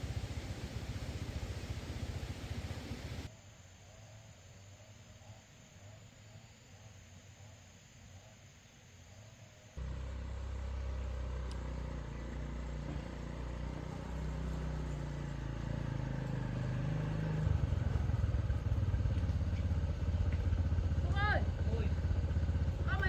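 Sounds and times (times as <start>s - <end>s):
small engine running: 0.0s - 3.3s, 9.8s - 23.0s.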